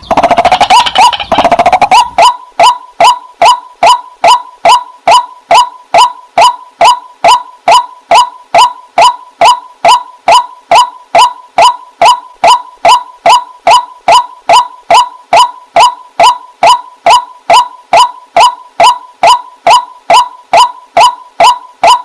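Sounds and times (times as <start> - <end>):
faint steady tone: 0.0 - 22.0
waterhen calling: 0.0 - 22.0.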